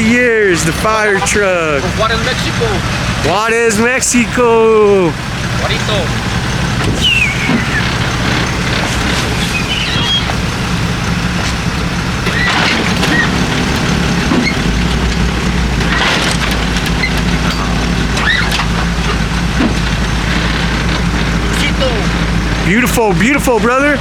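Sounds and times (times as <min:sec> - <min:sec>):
vehicle engine idling: 0:00.0 - 0:24.0
deep low rumble: 0:05.2 - 0:21.4
short high chirps: 0:07.0 - 0:10.4.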